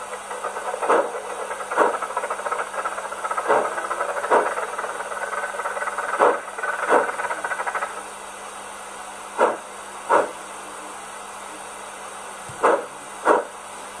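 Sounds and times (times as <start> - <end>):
steam puffs: 0.0 - 8.2, 9.3 - 10.5, 12.6 - 13.6
low steam hiss: 0.0 - 14.0
model steam locomotive chuffing: 0.0 - 14.0.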